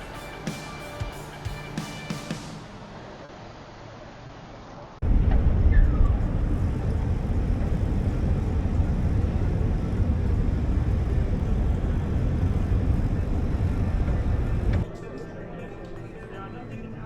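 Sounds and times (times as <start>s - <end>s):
wind buffeting microphone: 5.0s - 14.9s.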